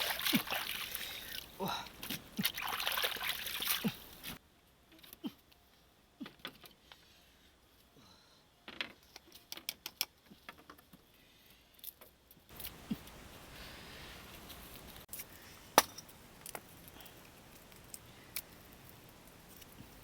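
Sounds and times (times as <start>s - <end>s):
water splashing: 0.0s - 4.4s.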